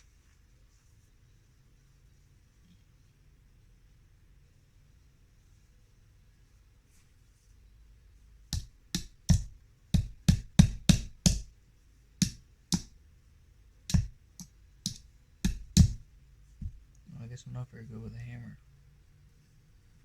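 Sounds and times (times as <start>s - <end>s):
hammer striking nail into wood: 8.6s - 11.5s, 12.2s - 12.9s, 13.9s - 14.1s, 14.9s - 16.0s.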